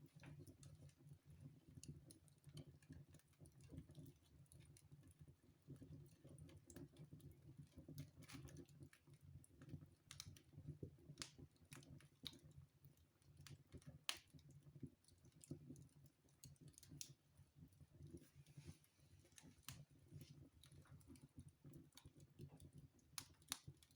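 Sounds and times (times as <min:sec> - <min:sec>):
wood fire crackling: 0:00.0 - 0:23.9.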